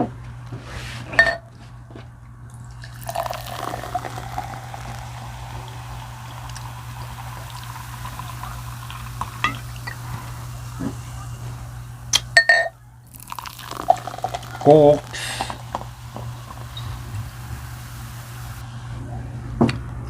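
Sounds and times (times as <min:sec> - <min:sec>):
soda pouring into a glass: 0:02.5 - 0:12.2, 0:13.1 - 0:18.6.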